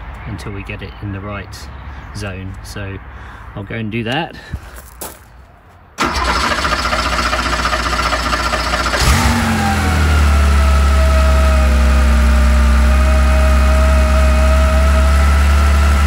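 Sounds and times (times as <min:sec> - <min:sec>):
car engine starting and idling: 0:06.0 - 0:16.0.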